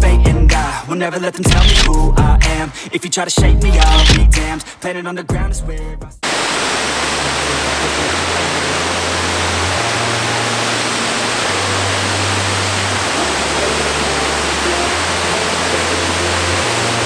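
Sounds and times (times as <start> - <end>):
waterfall rushing: 6.2 - 17.0.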